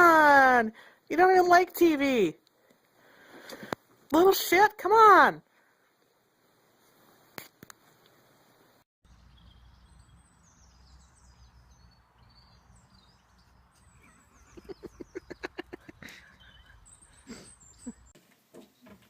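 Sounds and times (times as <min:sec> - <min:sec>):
small birds chirping: 0:09.1 - 0:19.0.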